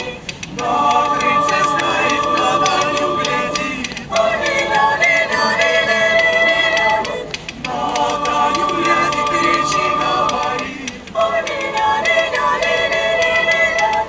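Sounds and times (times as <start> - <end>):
choir singing held chords: 0.0 - 14.0.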